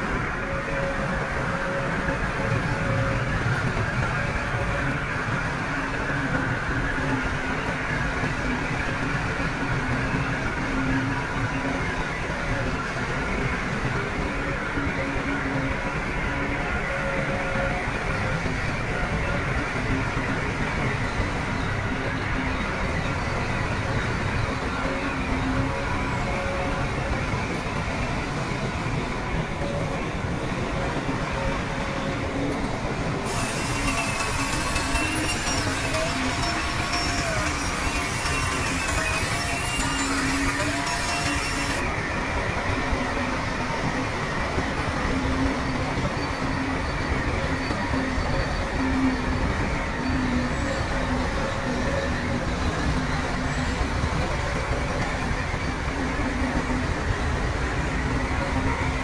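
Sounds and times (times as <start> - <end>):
squeaks from tracks: 0.0 - 59.0
high hiss: 33.3 - 41.8.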